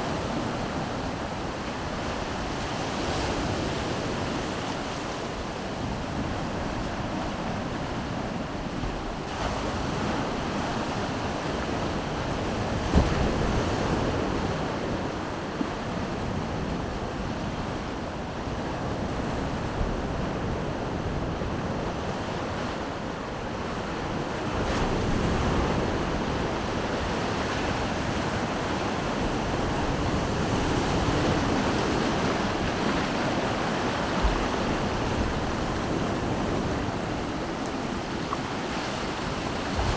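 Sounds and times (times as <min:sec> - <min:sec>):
wind buffeting microphone: 0:00.0 - 0:39.9
surf washing onto beach: 0:23.9 - 0:39.9.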